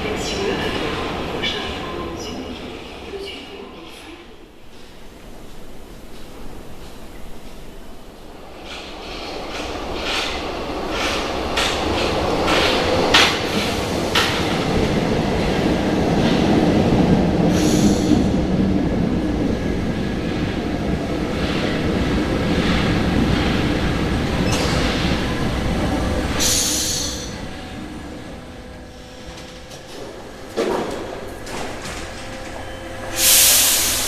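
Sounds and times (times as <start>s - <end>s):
train wheels rumbling on rail: 0.0s - 34.0s
hissing bursts: 33.2s - 34.0s.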